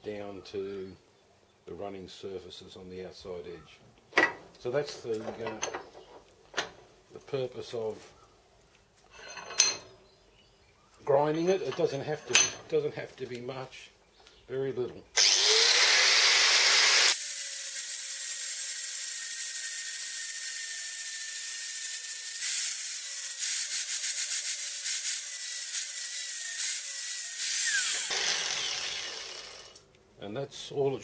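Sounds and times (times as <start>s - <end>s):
angle grinder grinding metal: 15.2s - 29.8s.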